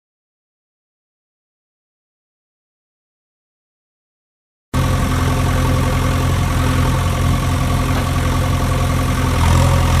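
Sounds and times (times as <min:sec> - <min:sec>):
heavy vehicle engine idling: 0:04.8 - 0:10.0.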